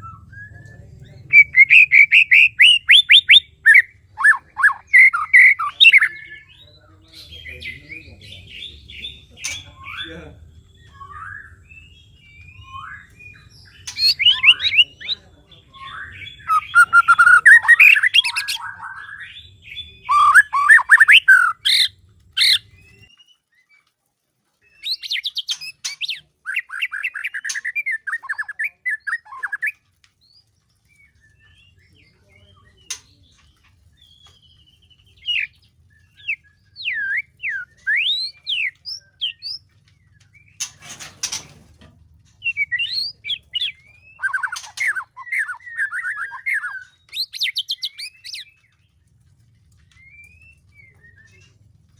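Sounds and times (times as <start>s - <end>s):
bird singing whistles: 0.0s - 6.8s, 9.0s - 23.4s, 24.7s - 29.8s, 34.0s - 39.6s, 42.4s - 48.6s, 49.9s - 51.6s
bird harsh chatter: 1.3s - 11.4s, 12.5s - 23.1s, 24.8s - 29.8s, 35.0s - 39.7s, 40.3s - 41.8s, 42.4s - 48.6s.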